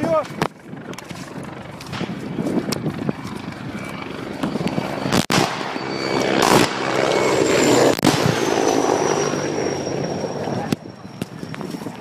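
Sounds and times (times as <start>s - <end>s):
helicopter running overhead: 0.0s - 12.0s
high whine: 0.0s - 12.0s
sharp blasts: 4.4s - 9.9s.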